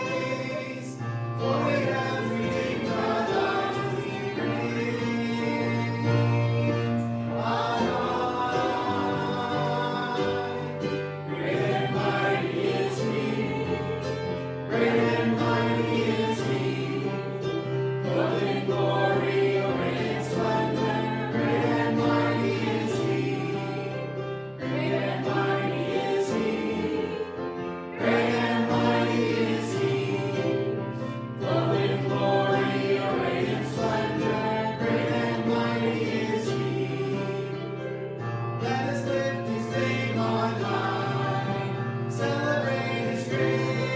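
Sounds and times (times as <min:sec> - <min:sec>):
voices singing a worship song: 0:00.0 - 0:43.9.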